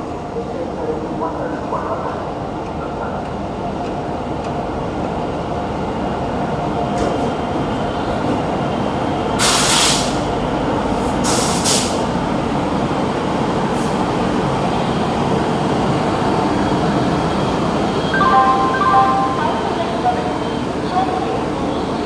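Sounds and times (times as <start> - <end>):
train wheels rumbling on rail: 0.0 - 18.1
air brakes hissing: 9.4 - 10.3, 11.0 - 12.1.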